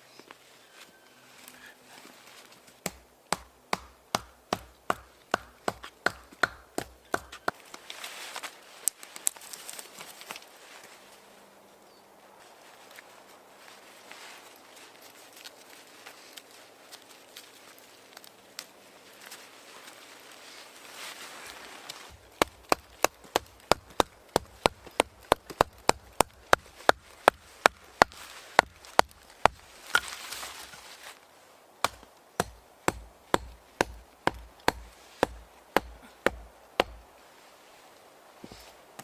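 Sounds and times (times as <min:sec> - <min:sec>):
blade chopping strikes: 0:02.9 - 0:07.6, 0:22.1 - 0:30.8, 0:31.8 - 0:37.1
rustling: 0:19.1 - 0:39.0.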